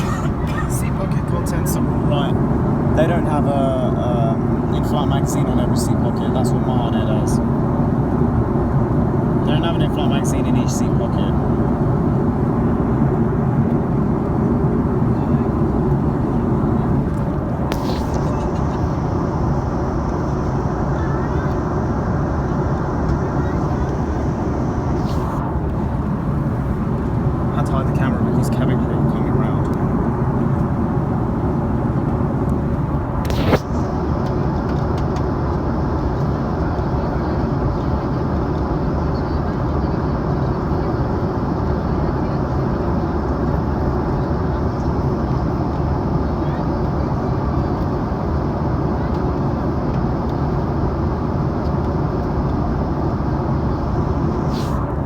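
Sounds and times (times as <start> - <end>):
airliner cabin noise: 0.0 - 55.0
short scuffing noise: 25.0 - 25.4.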